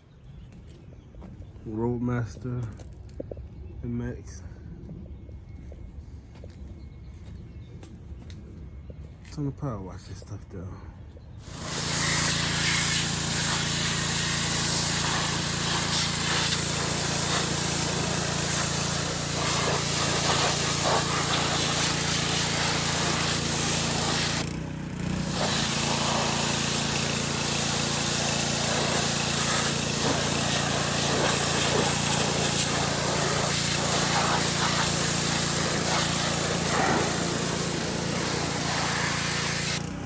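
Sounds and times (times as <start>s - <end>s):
water spray hissing: 11.4s - 24.5s, 25.2s - 39.8s
pressure washer motor hum: 11.4s - 40.0s.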